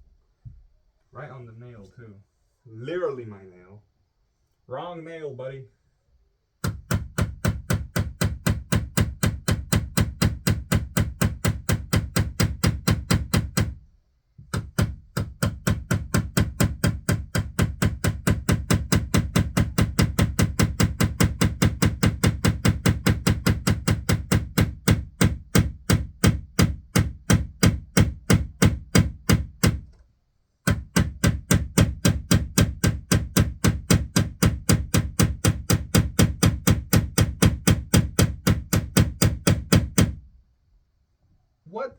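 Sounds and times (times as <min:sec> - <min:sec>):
hammer striking a nail: 0:06.6 - 0:13.8, 0:14.4 - 0:30.0, 0:30.6 - 0:40.2.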